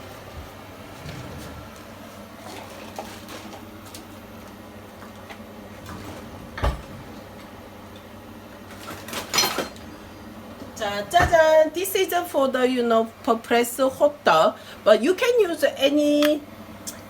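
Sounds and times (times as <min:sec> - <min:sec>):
steady low hum: 0:00.0 - 0:08.8
utensils clattering: 0:08.7 - 0:09.9.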